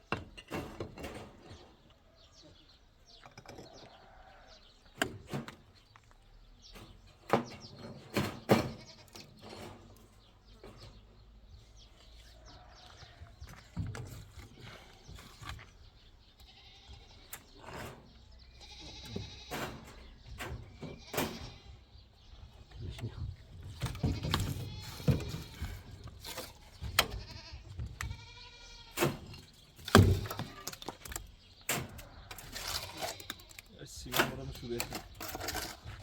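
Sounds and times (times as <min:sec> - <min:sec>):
sheep or goats bleating: 0:16.3 - 0:17.6, 0:18.4 - 0:19.8, 0:27.0 - 0:29.0
knocks and clatter: 0:23.6 - 0:28.3.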